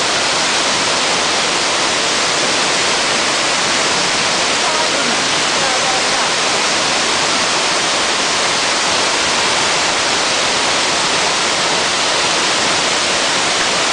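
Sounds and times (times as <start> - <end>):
waterfall rushing: 0.0 - 13.9.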